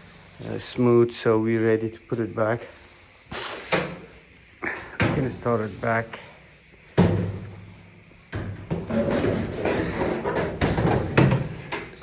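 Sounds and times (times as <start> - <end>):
parts clattering and scraping: 6.8 - 12.0.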